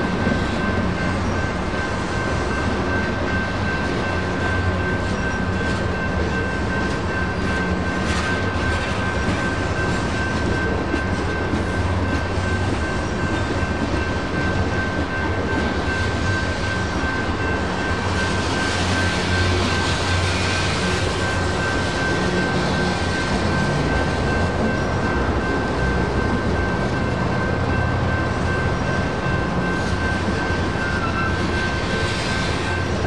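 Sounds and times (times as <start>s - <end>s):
crossing bell ringing: 0.0s - 33.0s
freight train wheels rumbling: 0.0s - 33.0s.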